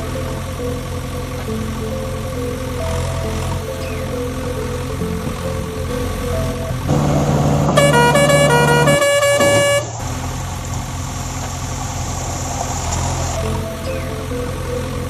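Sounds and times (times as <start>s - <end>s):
background music: 0.0s - 11.0s, 12.5s - 15.0s
musical vehicle horn: 6.9s - 10.1s.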